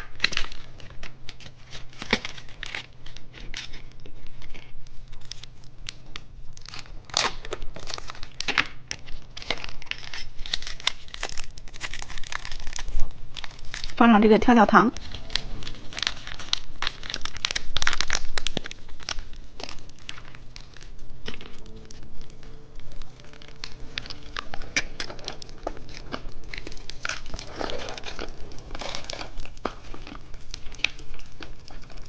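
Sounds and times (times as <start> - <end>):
plastic packaging crinkling: 0.0 - 32.0.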